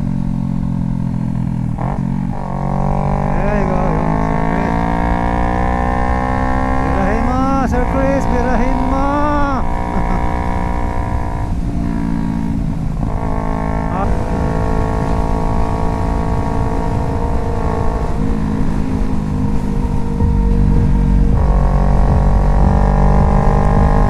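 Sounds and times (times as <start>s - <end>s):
motorcycle engine running: 0.0s - 24.0s
wind rumble: 0.0s - 24.0s.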